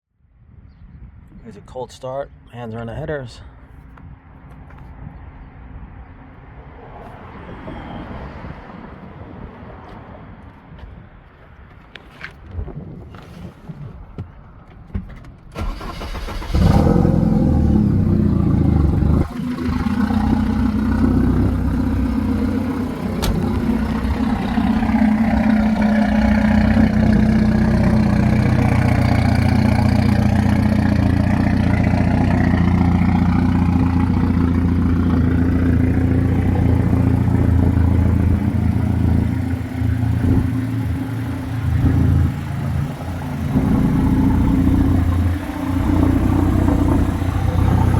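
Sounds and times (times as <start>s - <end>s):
car engine starting and idling: 15.1s - 47.9s.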